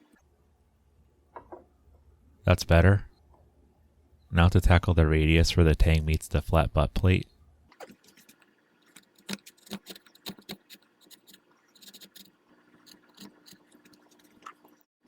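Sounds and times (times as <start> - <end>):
chisel cutting wood: 9.0 - 14.4.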